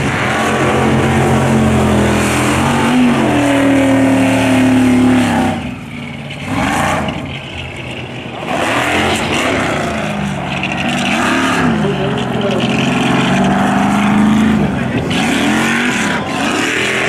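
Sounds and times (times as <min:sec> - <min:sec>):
buggy engine revving: 0:00.0 - 0:17.0.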